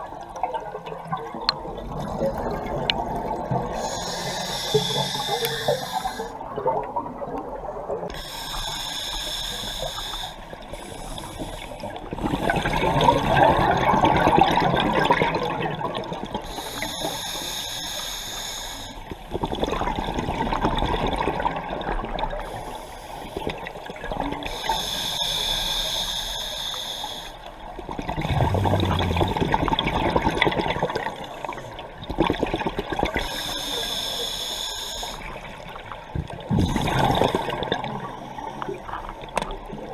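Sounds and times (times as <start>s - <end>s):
regulator hissing inhalation: 3.8s - 6.4s
bubbling exhaled air: 28.0s - 31.1s.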